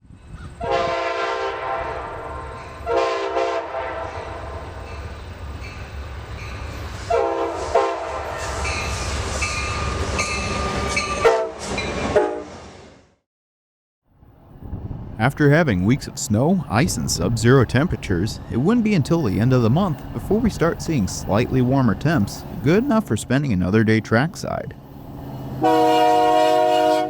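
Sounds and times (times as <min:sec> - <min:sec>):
passing train rumble: 0:00.0 - 0:13.1, 0:14.1 - 0:27.0
locomotive air horn blasts: 0:00.6 - 0:04.4, 0:07.1 - 0:08.5, 0:11.2 - 0:12.5, 0:25.6 - 0:27.0.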